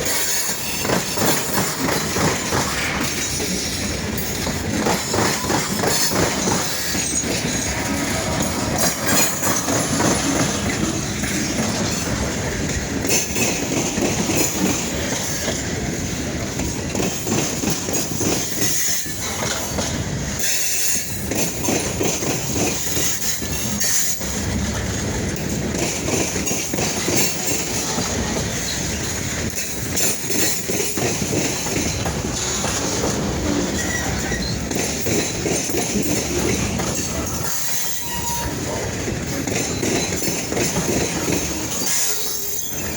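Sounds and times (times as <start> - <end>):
train wheels rumbling: 0.0 - 42.9
high wheel squeal: 37.0 - 38.8, 41.7 - 42.9.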